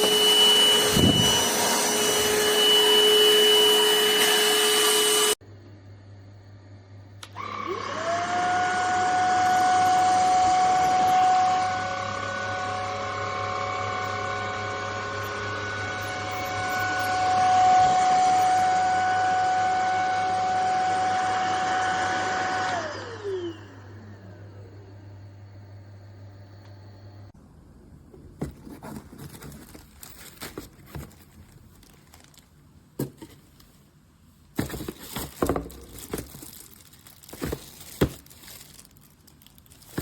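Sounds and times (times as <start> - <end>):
handheld vacuum motor whining: 0.0 - 5.4, 7.2 - 24.2, 34.6 - 38.8.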